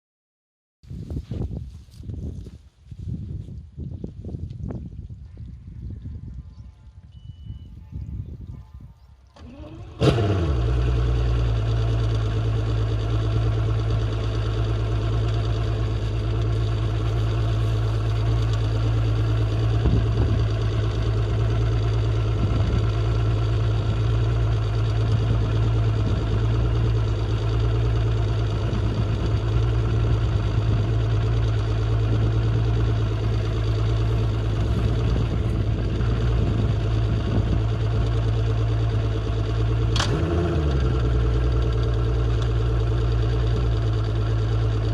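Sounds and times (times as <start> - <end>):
outboard motor idling: 9.3 - 44.9.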